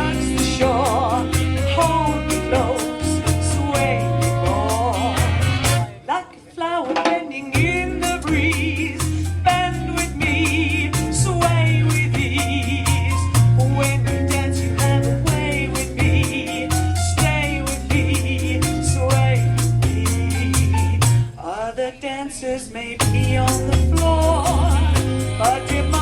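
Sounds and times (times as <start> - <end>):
steady drum beat: 0.0 - 5.9, 6.8 - 21.3, 23.0 - 26.0
wavering horn lines: 0.0 - 6.0
big band swing music: 0.0 - 21.5, 22.9 - 26.0.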